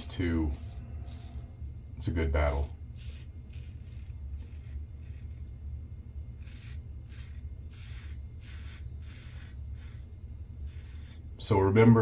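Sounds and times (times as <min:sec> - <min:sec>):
steady low hum: 0:00.0 - 0:12.0
razor scraping through stubble: 0:02.4 - 0:05.6, 0:06.4 - 0:11.2.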